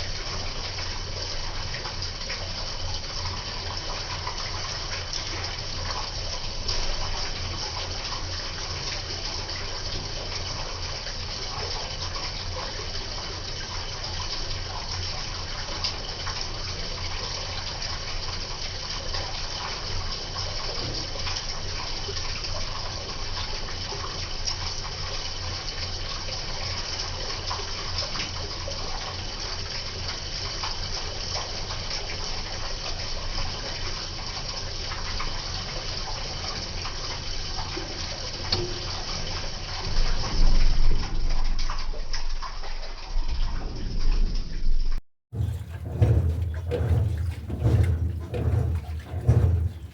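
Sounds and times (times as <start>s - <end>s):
water gushing in washing machine: 0.0s - 44.0s, 45.3s - 49.9s
low hum: 45.4s - 49.9s.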